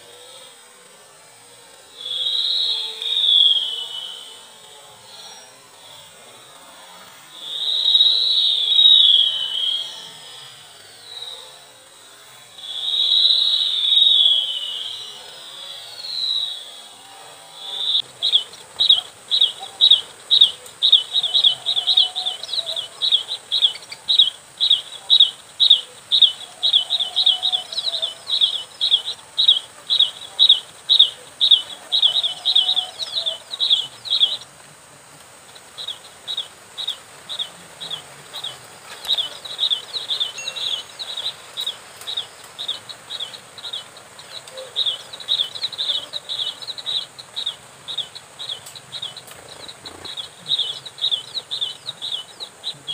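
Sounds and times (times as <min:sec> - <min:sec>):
bird sharp high chirps: 0:17.8 - 0:34.4, 0:35.8 - 0:52.9.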